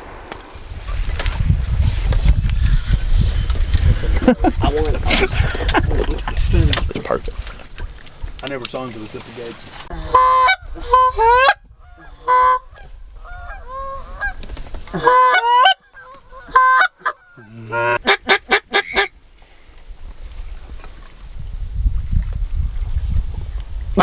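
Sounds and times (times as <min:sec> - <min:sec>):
goose-like honking calls: 0:09.9 - 0:19.1.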